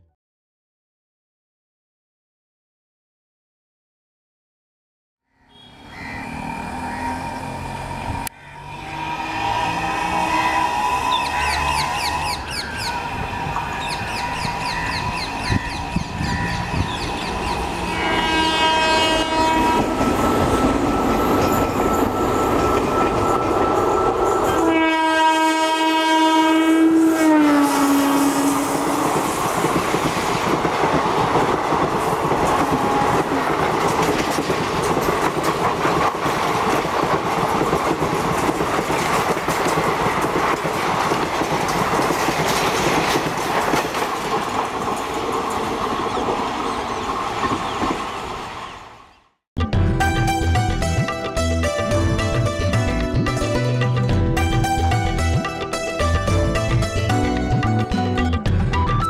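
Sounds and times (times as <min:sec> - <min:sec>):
train horn blasts: 0:05.5 - 0:20.7, 0:21.3 - 0:29.2
train coaches rumbling past: 0:05.6 - 0:49.2.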